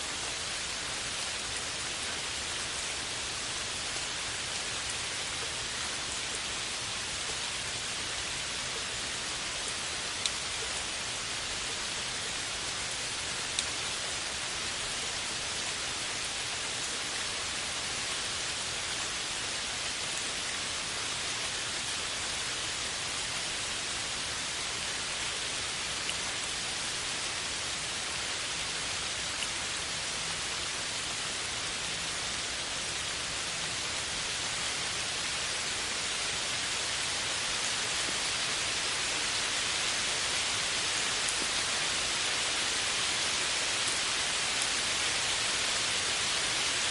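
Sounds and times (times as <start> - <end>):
steady rain hiss: 0.0 - 46.9
raindrop ticks: 10.2 - 10.7, 13.5 - 13.8.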